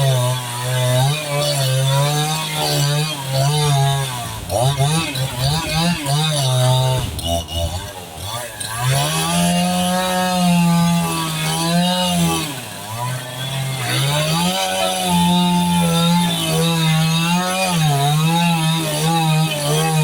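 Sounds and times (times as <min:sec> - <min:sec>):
chainsaw cutting wood: 0:00.0 - 0:20.0.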